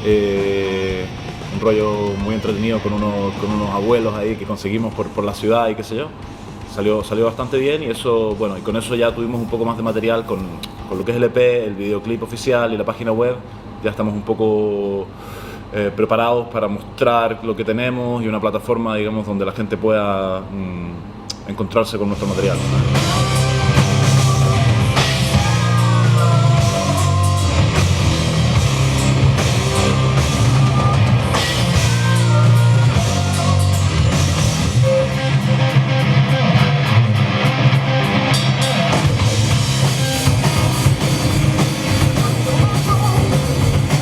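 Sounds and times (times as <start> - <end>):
loud rock music: 0.0 - 11.0, 22.2 - 44.0
lead guitar bending in pitch: 22.4 - 44.0.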